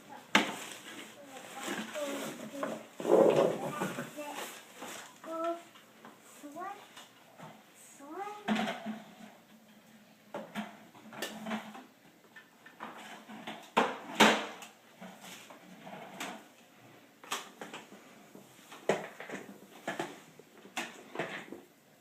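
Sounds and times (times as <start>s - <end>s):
plastic toy trucks clattering: 18.7s - 21.7s.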